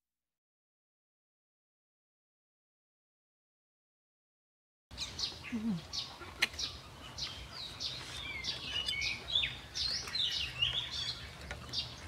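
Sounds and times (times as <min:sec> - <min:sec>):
small birds chirping: 0:04.9 - 0:12.0.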